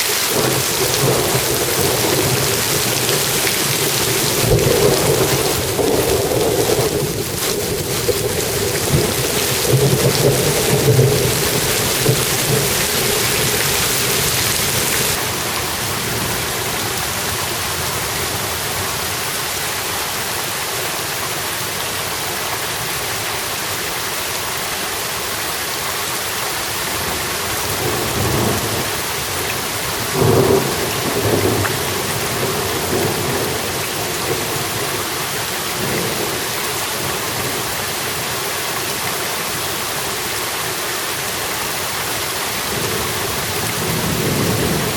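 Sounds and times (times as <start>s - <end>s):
steady rain falling: 0.0s - 44.9s
thunder rumbles: 0.2s - 17.7s, 27.0s - 37.8s, 42.6s - 44.9s.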